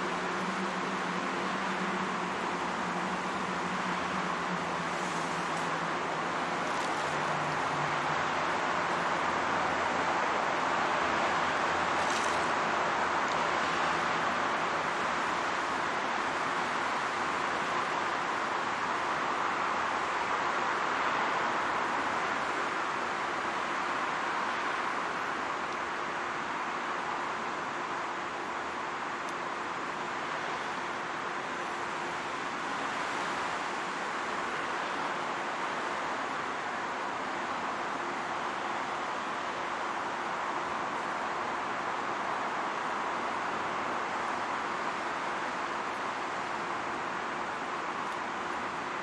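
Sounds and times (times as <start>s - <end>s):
traffic noise: 0.0s - 49.0s.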